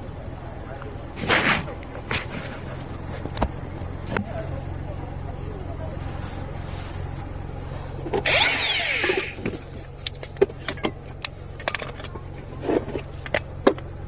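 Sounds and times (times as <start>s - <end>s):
power tool whirring: 8.1s - 9.6s.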